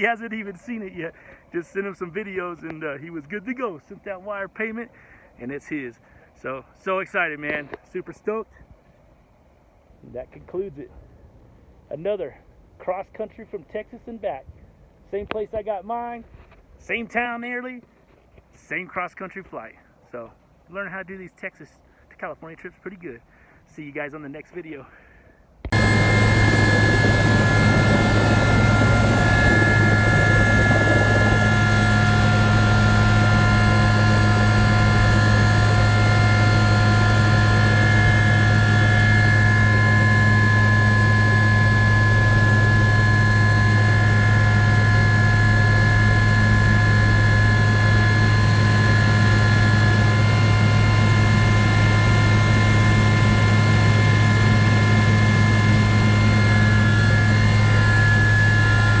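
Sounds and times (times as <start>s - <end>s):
helicopter drone: 25.7s - 59.0s
thin high whine: 25.7s - 59.0s.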